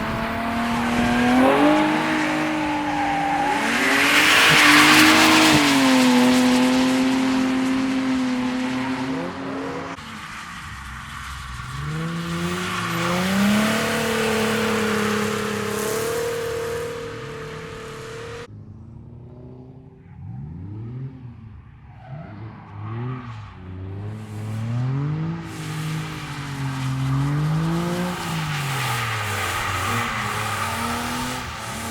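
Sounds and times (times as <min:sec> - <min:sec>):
tyre squeal: 0:00.0 - 0:06.6, 0:08.8 - 0:18.5, 0:25.5 - 0:31.9
car engine revving in blips: 0:00.0 - 0:31.9
car engines at high revs: 0:00.0 - 0:31.9.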